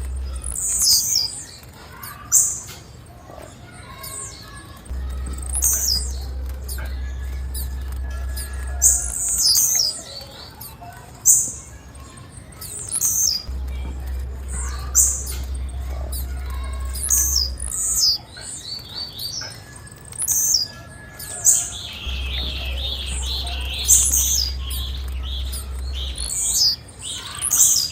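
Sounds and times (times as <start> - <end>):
steady low hum: 0.0 - 1.8, 2.8 - 27.9
bird chirping: 0.0 - 27.9.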